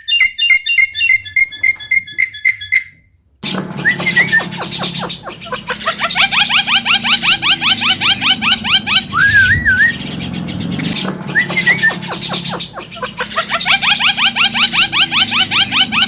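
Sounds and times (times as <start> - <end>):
bird warbling whistle: 0.0 - 16.0
bird rapid rising chirps: 3.4 - 16.0.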